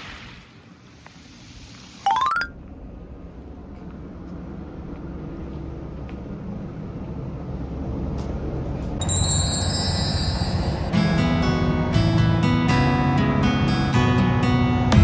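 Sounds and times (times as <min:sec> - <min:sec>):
low engine rumble: 0:02.6 - 0:15.0
rising chime-like tones: 0:09.0 - 0:11.1.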